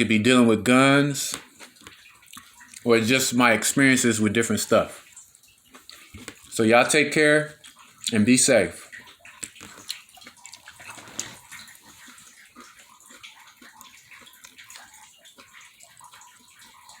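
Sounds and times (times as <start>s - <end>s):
water trickling and dripping: 0.0s - 17.0s.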